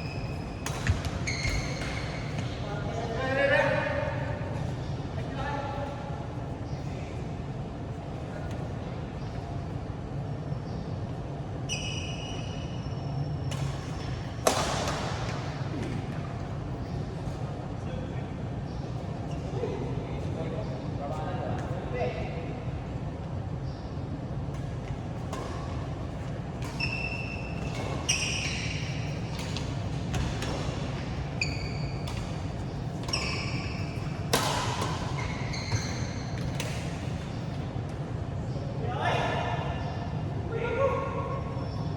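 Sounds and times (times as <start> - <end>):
shoe squeak on court: 0.0 - 2.6, 11.7 - 14.1, 26.6 - 30.6, 31.4 - 37.1
shoes squeaking on court floor: 0.0 - 17.8, 23.6 - 39.9
racket hitting shuttlecock: 0.6 - 2.6, 13.5 - 16.2, 24.6 - 37.4.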